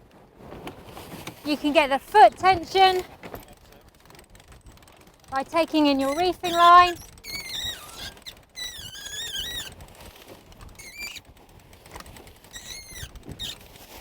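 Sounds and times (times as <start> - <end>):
rope squeaking through blocks: 5.6 - 11.4, 12.2 - 14.0.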